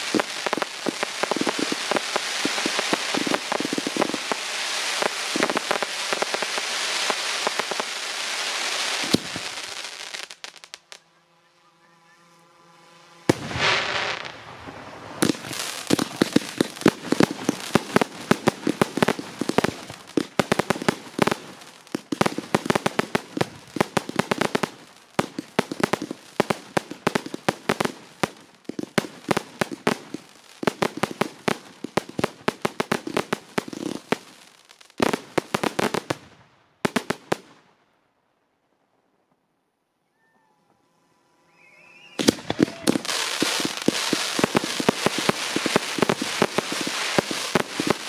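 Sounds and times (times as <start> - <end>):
fireworks bangs and crackling pops: 0.0 - 11.0, 13.3 - 37.8, 42.1 - 48.0
firework hiss: 0.0 - 11.1, 12.8 - 32.0, 41.5 - 48.0.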